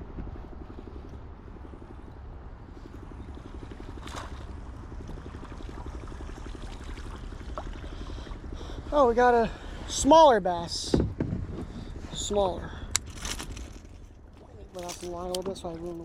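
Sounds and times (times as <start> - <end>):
wind: 0.0 - 16.0
water rumble: 1.4 - 16.0.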